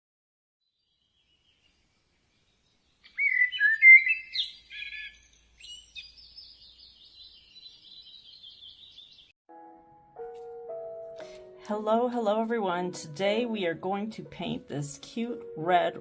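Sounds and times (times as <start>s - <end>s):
songbird singing: 0.6s - 9.4s.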